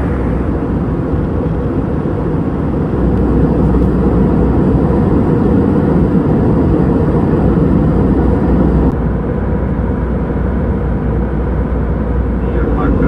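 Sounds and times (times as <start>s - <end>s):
rushing air: 0.0s - 2.1s
jet engine cabin rumble: 0.0s - 13.0s.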